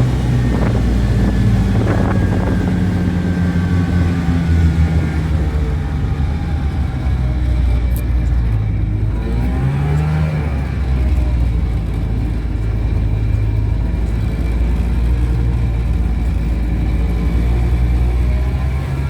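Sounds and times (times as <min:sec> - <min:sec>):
small truck engine revving: 0:00.0 - 0:19.0.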